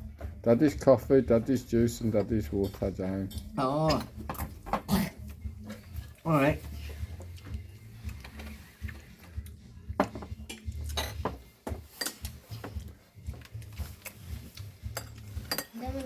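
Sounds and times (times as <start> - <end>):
cutlery clinking on plates: 2.0 - 5.0, 10.0 - 16.0.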